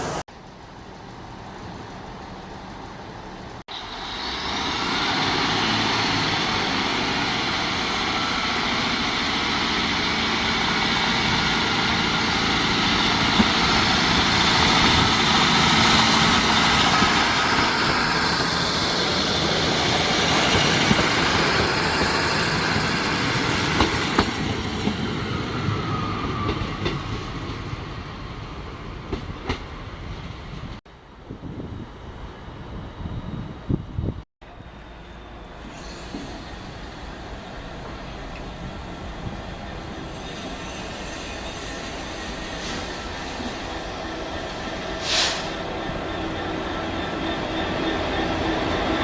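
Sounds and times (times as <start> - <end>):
train running on rails: 0.0 - 49.0
sharp hiss: 35.6 - 37.2, 44.9 - 45.6
faint wheel squeal: 39.8 - 48.7.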